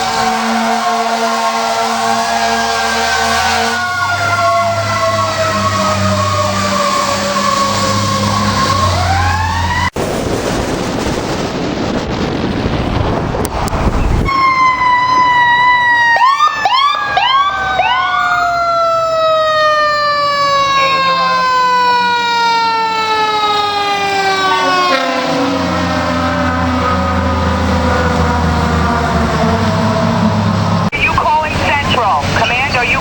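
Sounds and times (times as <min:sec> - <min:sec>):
mechanical siren wail: 0:00.0 - 0:10.0, 0:12.6 - 0:30.9
siren chirps: 0:00.0 - 0:33.0
heavy engine rumble: 0:26.1 - 0:33.0.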